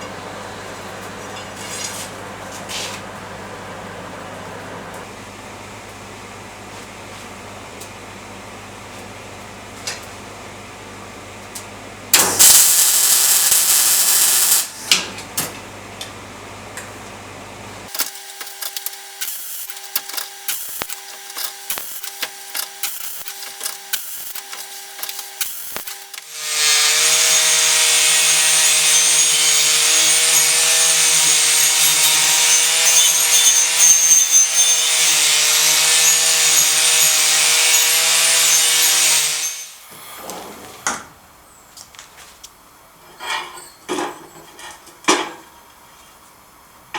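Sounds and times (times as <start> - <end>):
power tool running on steel: 12.2 - 14.8, 17.9 - 39.8
loud hiss: 12.2 - 14.9
tone switching on and off: 12.3 - 14.7.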